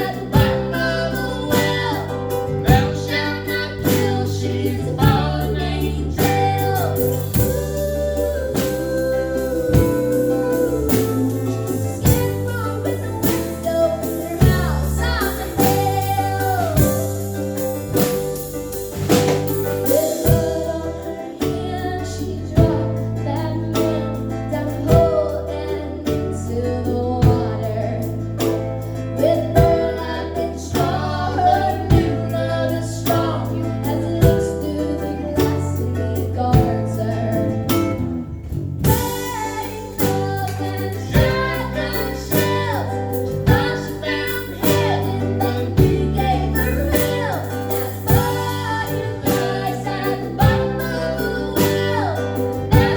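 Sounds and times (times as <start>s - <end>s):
bass line: 0.0s - 52.9s
guitar: 0.0s - 52.9s
woman singing lead: 0.0s - 52.9s.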